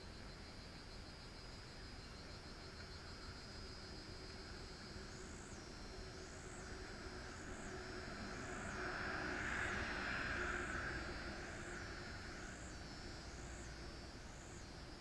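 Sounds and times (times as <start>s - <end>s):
insects chirping: 0.0s - 15.0s
road vehicle passing: 6.7s - 14.2s.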